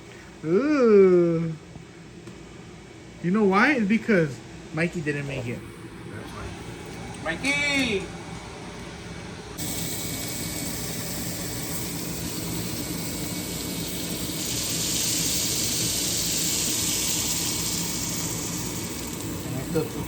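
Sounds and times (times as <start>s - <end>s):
batter sizzling on a pan: 9.6s - 20.0s.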